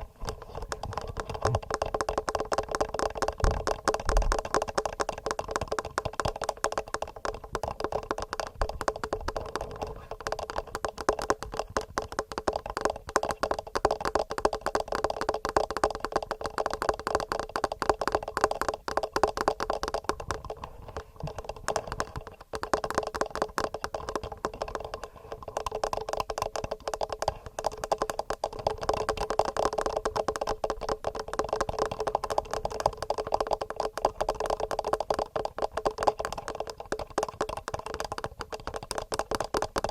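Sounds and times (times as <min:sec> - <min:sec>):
fingernails tapping on microphones: 0:00.0 - 0:39.9.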